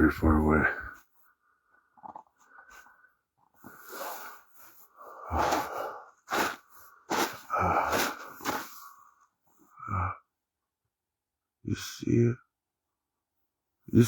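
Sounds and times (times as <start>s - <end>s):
person breathing heavily: 3.6s - 9.1s.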